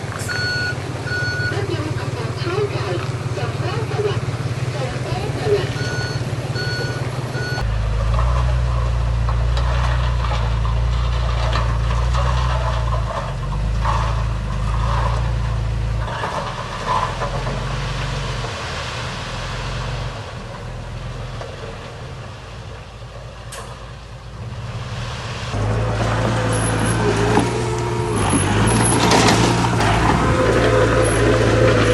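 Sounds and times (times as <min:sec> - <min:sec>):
heavy diesel engines: 0:00.0 - 0:31.9
reversing beeper: 0:00.2 - 0:01.7, 0:05.5 - 0:07.7, 0:30.0 - 0:31.9.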